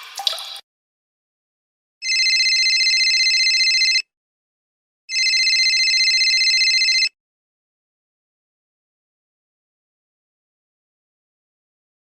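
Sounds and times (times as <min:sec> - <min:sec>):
telephone ringing: 0:02.0 - 0:04.1, 0:05.1 - 0:07.2.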